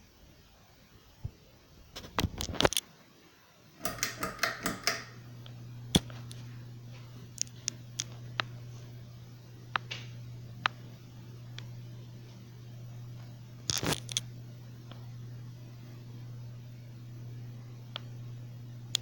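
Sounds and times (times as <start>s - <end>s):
ceiling fan motor humming: 3.6s - 19.0s
ceiling fan clicks: 3.8s - 8.6s, 9.7s - 12.4s, 13.1s - 15.1s, 17.9s - 18.2s.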